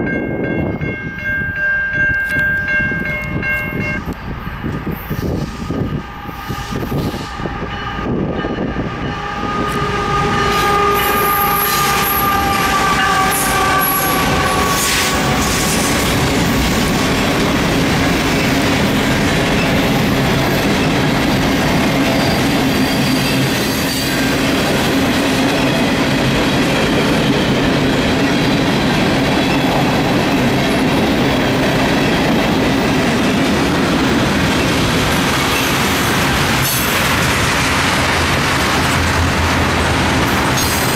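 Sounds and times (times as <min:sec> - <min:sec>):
locomotive horn: 0:08.8 - 0:16.5
freight cars rumbling and clattering: 0:14.0 - 0:40.9.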